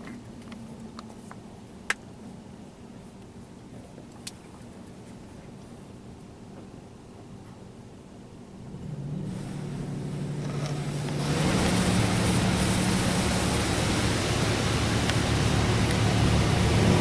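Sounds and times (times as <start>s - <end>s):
pump humming: 0.0s - 17.0s
water spray hissing on car body: 9.2s - 17.0s.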